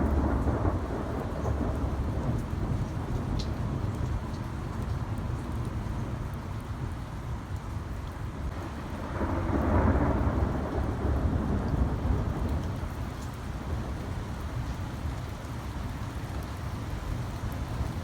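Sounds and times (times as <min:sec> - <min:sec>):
thunder rumble: 0:00.0 - 0:04.2, 0:08.5 - 0:14.4
steady rain: 0:00.0 - 0:18.0.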